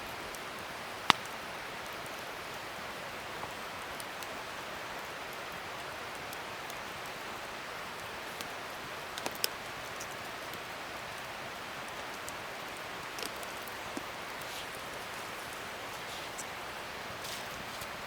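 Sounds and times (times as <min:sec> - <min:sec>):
campfire crackling: 0:00.0 - 0:18.0
fire pops: 0:00.3 - 0:01.4, 0:09.1 - 0:10.6, 0:11.9 - 0:18.0.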